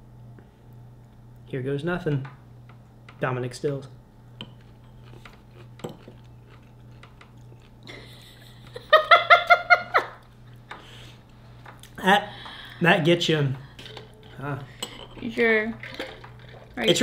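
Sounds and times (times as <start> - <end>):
biting and chewing pickle: 4.6 - 7.9.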